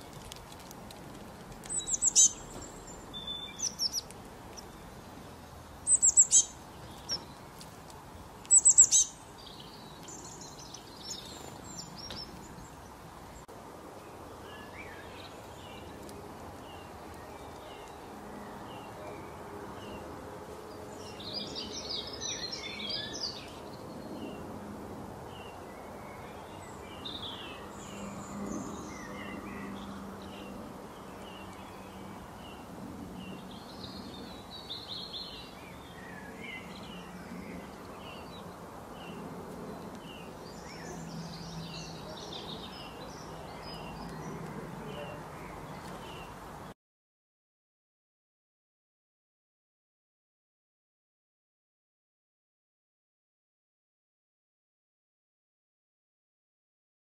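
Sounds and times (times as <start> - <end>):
birds chirping and twittering: 0.0 - 46.7
sharp downward bird calls: 8.5 - 9.2.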